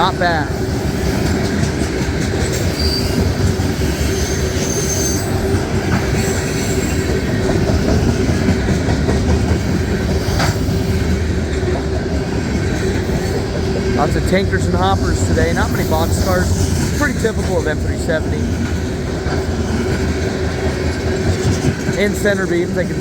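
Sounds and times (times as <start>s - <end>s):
constant whining tone: 0.0s - 23.0s
train wheels rumbling on rail: 0.0s - 23.0s
high wheel squeals: 2.6s - 7.2s.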